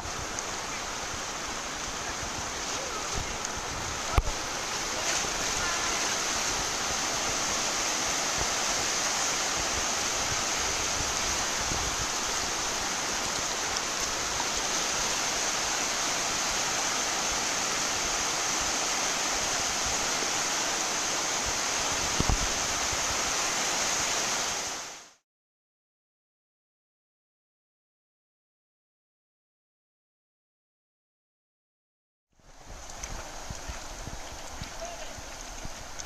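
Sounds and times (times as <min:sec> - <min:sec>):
white water rushing over rapids: 0:00.0 - 0:25.2, 0:32.4 - 0:36.0.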